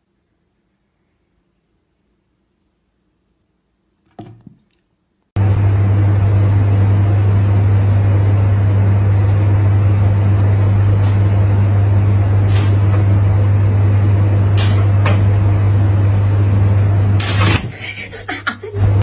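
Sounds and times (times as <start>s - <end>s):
low motor drone: 5.4s - 18.1s.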